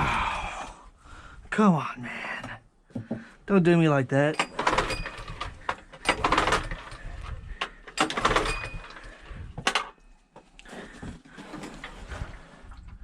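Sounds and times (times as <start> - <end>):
clatter: 4.4 - 10.0
recoil starter pulls rasping: 4.4 - 10.0.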